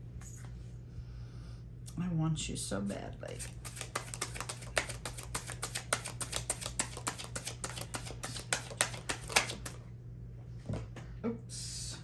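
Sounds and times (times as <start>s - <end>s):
cards being shuffled: 3.3s - 9.8s.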